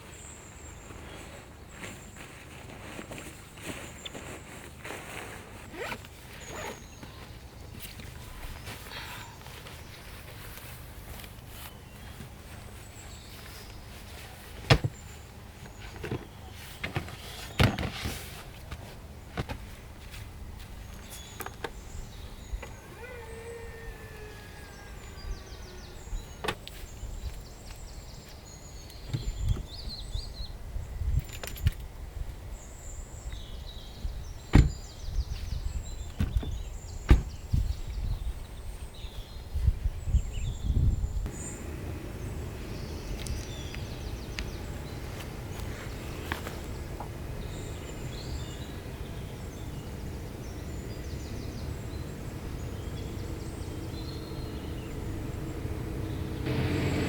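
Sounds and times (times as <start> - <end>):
sharp knocks and thuds: 14.6 - 15.0, 34.5 - 34.8, 36.2 - 37.4.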